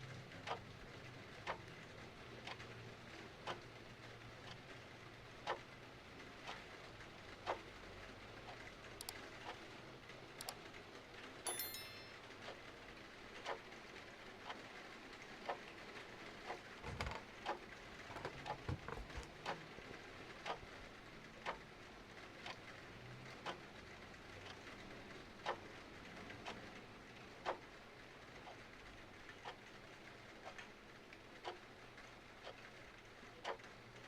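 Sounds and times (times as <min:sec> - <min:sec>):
clock ticking: 0:11.5 - 0:12.1.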